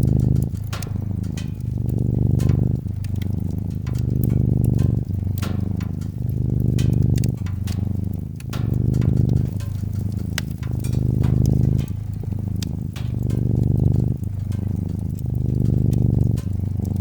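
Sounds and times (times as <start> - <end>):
cat purring: 0.0 - 17.0
wood fire crackling: 0.0 - 17.0.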